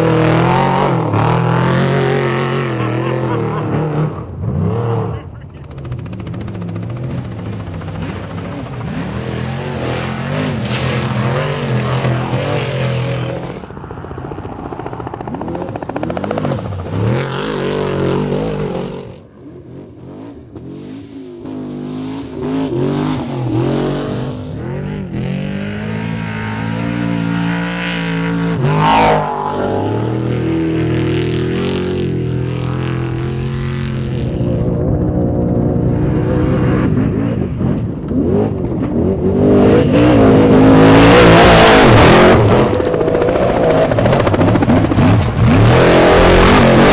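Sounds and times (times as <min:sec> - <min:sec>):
truck engines revving and passing: 0:00.0 - 0:46.9.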